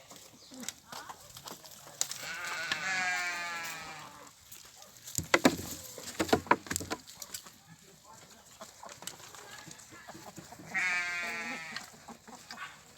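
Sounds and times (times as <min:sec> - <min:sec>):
goat bleating: 0:02.2 - 0:04.3, 0:10.6 - 0:12.6
sharp knocks: 0:05.2 - 0:07.0.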